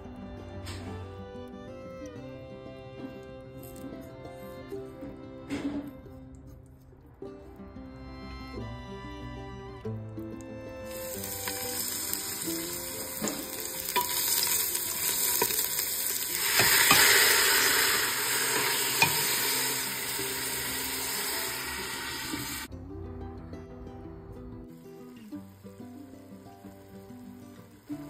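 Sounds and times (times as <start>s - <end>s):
hot oil sizzling in a pot: 10.8s - 22.7s, 24.7s - 28.0s
utensil knocking: 16.4s - 19.9s.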